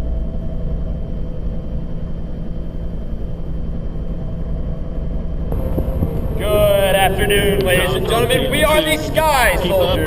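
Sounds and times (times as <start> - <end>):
helicopter turbine and rotor: 5.5 - 10.0.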